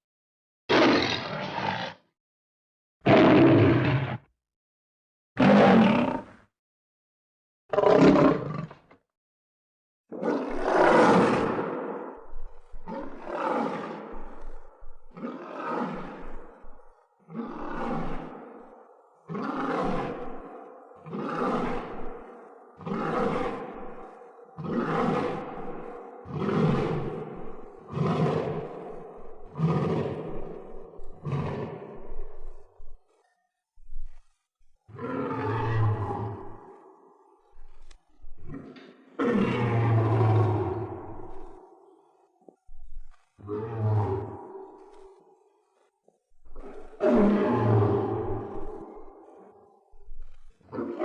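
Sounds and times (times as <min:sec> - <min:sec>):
lion roaring: 0:00.7 - 0:02.0, 0:03.1 - 0:04.3, 0:07.7 - 0:08.9, 0:10.3 - 0:18.7, 0:19.3 - 0:32.9, 0:34.9 - 0:37.0, 0:37.7 - 0:41.8, 0:43.0 - 0:45.2, 0:46.5 - 0:51.0.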